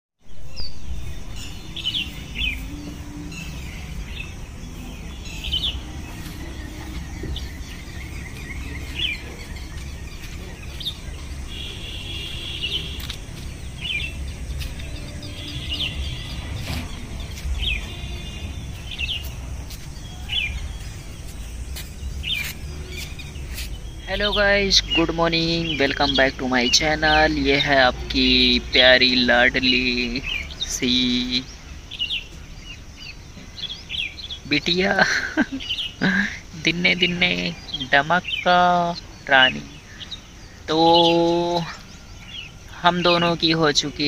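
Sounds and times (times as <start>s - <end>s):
small birds chirping: 0.2s - 44.0s
low rumble: 0.3s - 25.0s.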